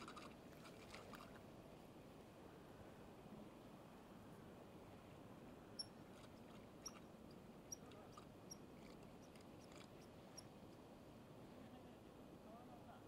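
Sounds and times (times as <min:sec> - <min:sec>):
small bird chirping: 0:06.8 - 0:07.0, 0:07.7 - 0:10.5.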